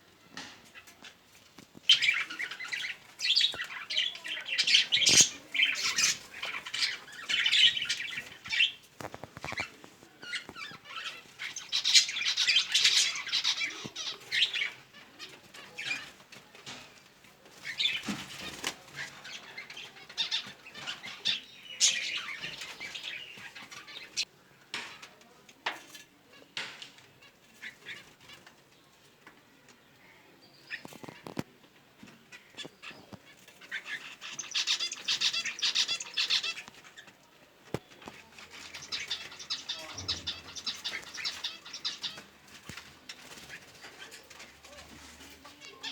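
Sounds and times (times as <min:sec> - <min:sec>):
clicks and rustles: 0:00.3 - 0:11.7, 0:30.8 - 0:45.9
pet birds chirping: 0:00.7 - 0:16.2, 0:17.6 - 0:24.3, 0:30.0 - 0:37.1, 0:37.7 - 0:45.9.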